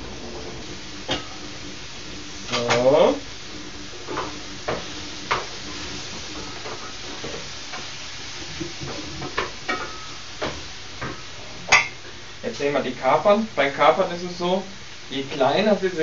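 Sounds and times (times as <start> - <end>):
stirring clicks and knocks: 0.0 - 11.2
food sizzling in a frying pan: 0.0 - 16.0.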